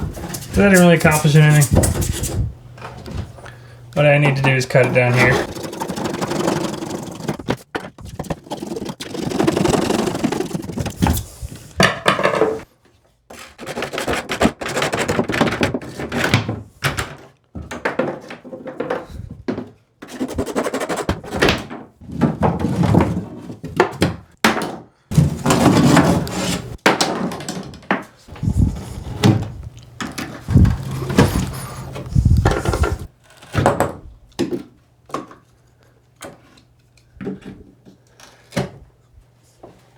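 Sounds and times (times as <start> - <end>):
pipe cutting and knocking: 4.2 - 11.1, 28.4 - 33.1.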